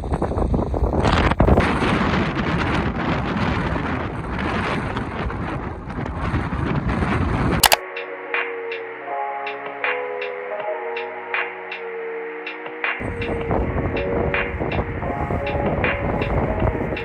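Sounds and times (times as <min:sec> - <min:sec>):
strong wind on microphone: 0:00.0 - 0:07.6, 0:13.0 - 0:17.0
soft ambient music: 0:07.8 - 0:17.0.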